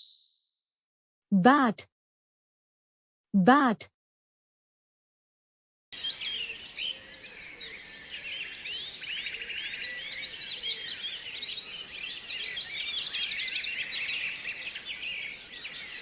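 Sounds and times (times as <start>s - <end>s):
small birds chirping: 6.0s - 16.0s.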